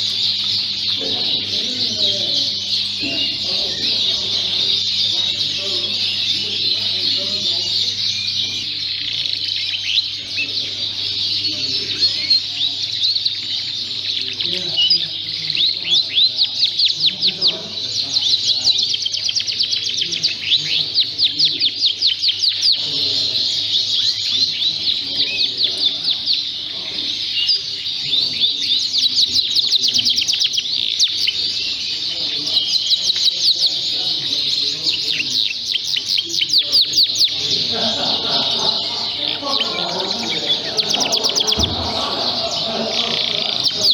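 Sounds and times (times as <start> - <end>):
canaries singing: 0.0 - 43.9.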